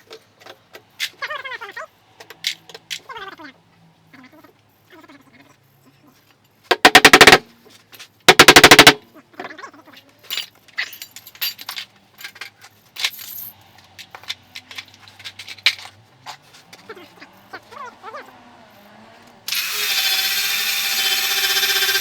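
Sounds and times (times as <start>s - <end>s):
rapid impacts on metal: 6.7s - 7.4s, 8.3s - 9.0s.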